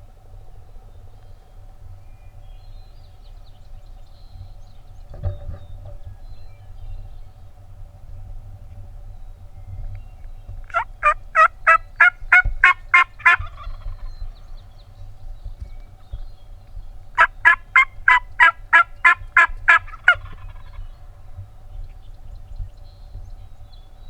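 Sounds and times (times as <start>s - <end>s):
turkey yelping: 10.7s - 14.1s, 17.2s - 20.8s.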